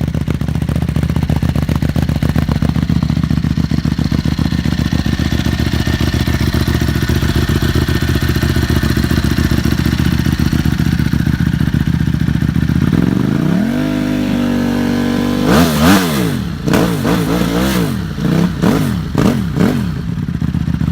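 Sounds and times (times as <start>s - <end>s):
motorcycle engine idling and revving: 0.0s - 20.9s.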